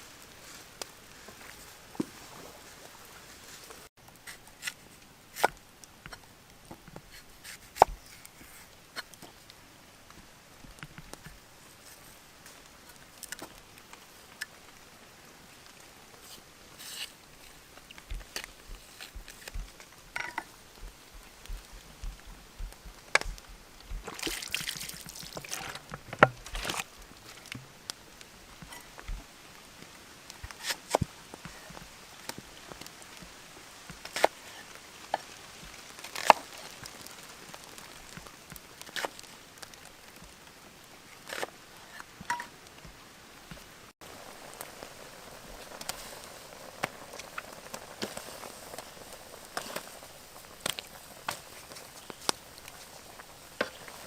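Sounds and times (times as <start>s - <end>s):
faint steady hiss: 0.0s - 54.0s
soft low thumps: 20.6s - 24.1s.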